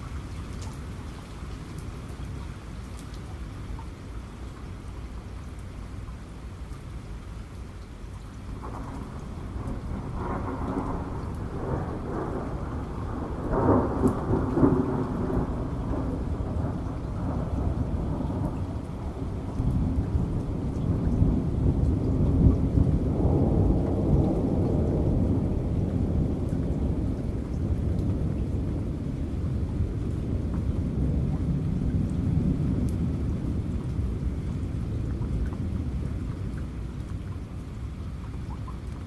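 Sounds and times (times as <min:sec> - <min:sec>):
steady rain: 0:00.0 - 0:39.0
rolling thunder: 0:08.6 - 0:36.8.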